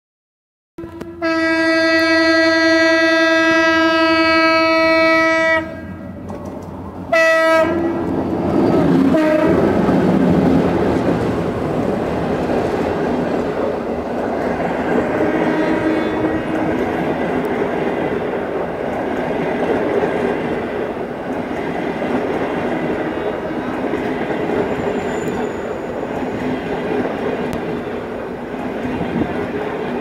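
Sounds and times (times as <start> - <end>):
locomotive horn blasts: 0.8 - 6.0, 7.1 - 8.1, 9.1 - 9.6, 15.2 - 16.7
coaches clickety-clack on rails: 0.8 - 30.0.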